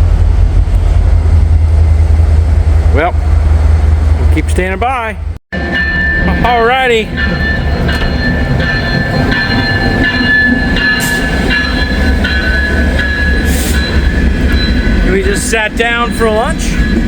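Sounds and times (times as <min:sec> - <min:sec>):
train rumbling past: 0:00.0 - 0:17.0
train wheels squealing: 0:07.1 - 0:17.0.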